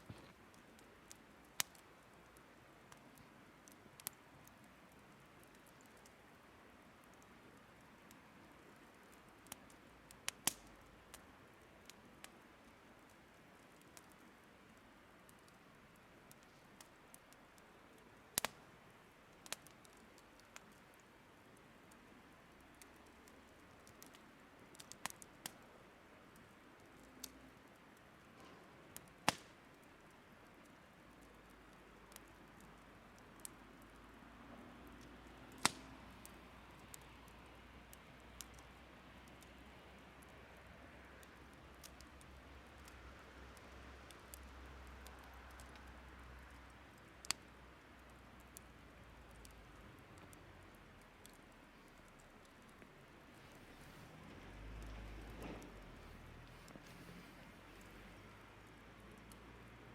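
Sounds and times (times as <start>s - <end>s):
faint steady hiss: 0.0s - 59.9s
firewood crackling and popping: 0.0s - 59.9s
sharp firewood pop: 35.5s - 35.9s.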